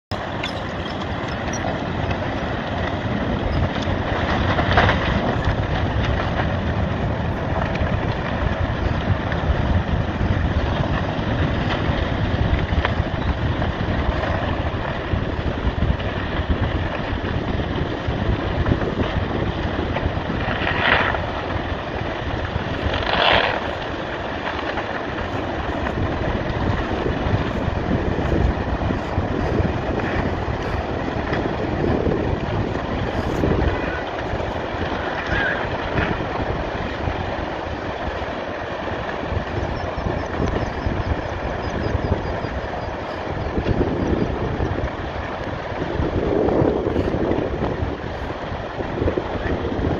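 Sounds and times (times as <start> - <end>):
wind buffeting microphone: 0.1 - 49.9
sea surf roaring: 13.9 - 49.9.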